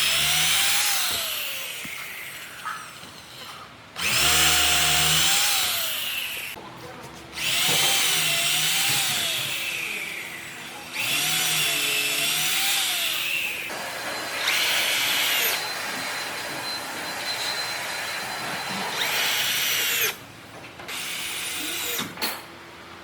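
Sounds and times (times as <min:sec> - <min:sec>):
power tool cutting wood: 0:00.0 - 0:03.4, 0:04.0 - 0:06.6, 0:07.4 - 0:16.3.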